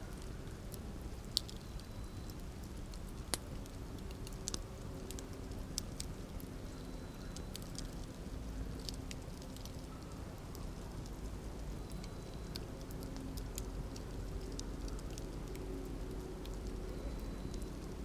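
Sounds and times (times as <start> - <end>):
burning wood crackling and popping: 0.0 - 18.0
campfire rumble: 7.6 - 18.0.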